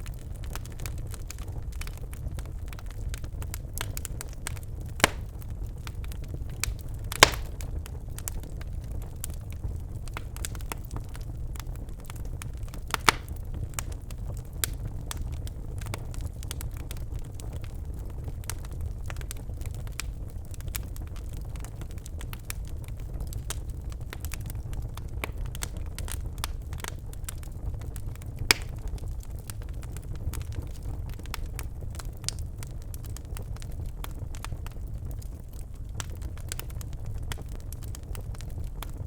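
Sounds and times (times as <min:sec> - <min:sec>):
logs crackling in a fireplace: 0:00.0 - 0:39.0
low rumble of fire: 0:00.0 - 0:39.0
sharp pops of fire: 0:03.5 - 0:05.9, 0:06.5 - 0:08.0, 0:12.5 - 0:13.9, 0:28.4 - 0:29.0.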